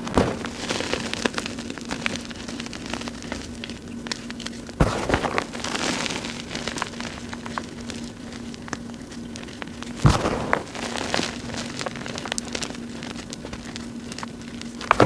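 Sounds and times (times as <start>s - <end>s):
chalk crunching by hand: 0.0s - 15.0s.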